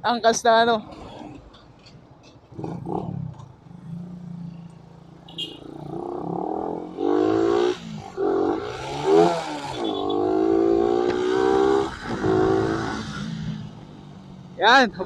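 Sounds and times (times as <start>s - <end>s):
motorcycle engine accelerating: 2.5s - 4.6s, 5.7s - 14.4s.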